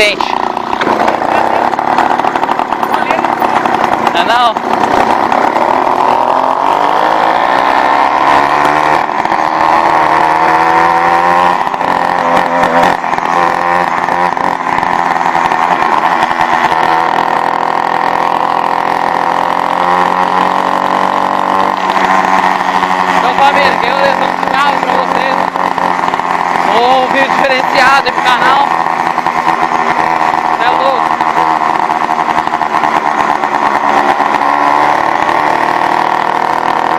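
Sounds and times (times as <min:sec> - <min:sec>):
two-stroke engine revving: 0:00.0 - 0:36.9.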